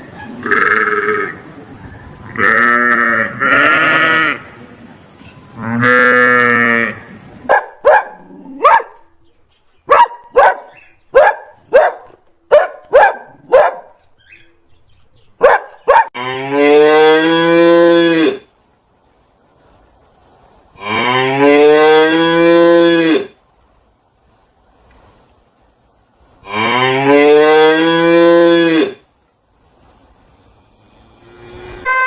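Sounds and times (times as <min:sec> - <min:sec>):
animals bleating: 0:00.4 - 0:01.4, 0:02.3 - 0:04.5
cow mooing: 0:31.1 - 0:32.0.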